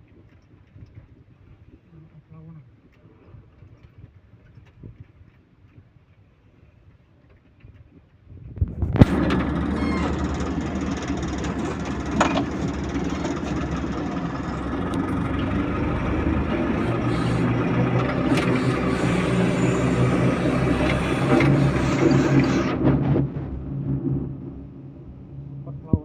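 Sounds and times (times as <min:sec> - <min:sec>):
heavy vehicle engine running: 0:08.8 - 0:26.0.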